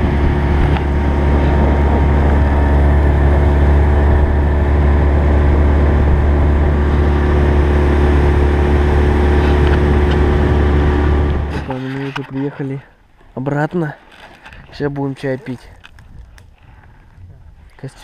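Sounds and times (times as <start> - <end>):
outboard motor droning: 0.0 - 13.4.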